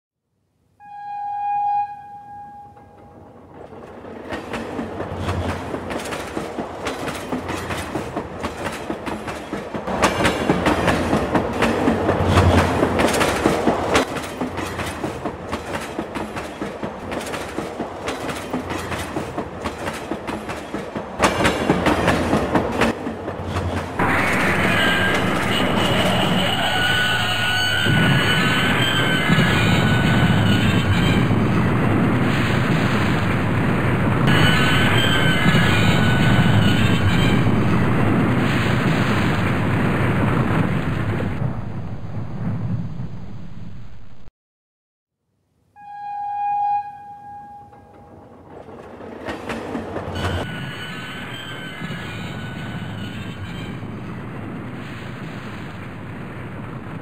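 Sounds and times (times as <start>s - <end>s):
train wheels clickety-clack: 2.9s - 24.0s, 47.7s - 50.5s.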